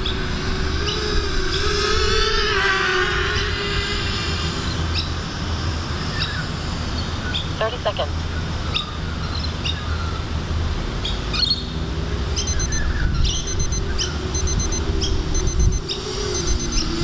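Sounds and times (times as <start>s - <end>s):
birds chirping: 6.1s - 10.3s, 11.0s - 17.0s.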